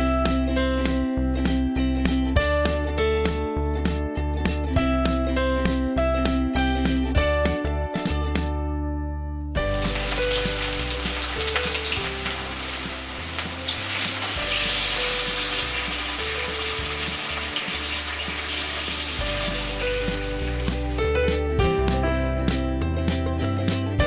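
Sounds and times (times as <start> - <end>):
soft background music: 0.0 - 24.0
onions sizzling in oil: 9.7 - 21.0.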